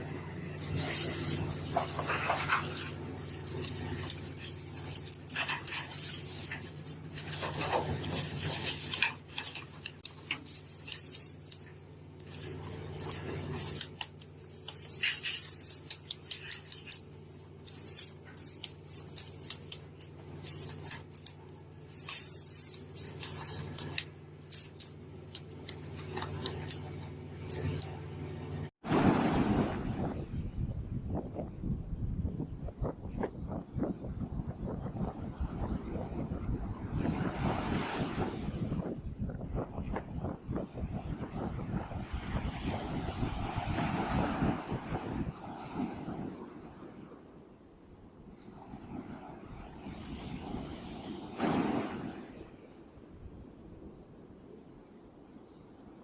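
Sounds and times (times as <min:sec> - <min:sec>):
low engine hum: 0:00.0 - 0:46.4
metallic clinks and knocks: 0:00.5 - 0:28.7.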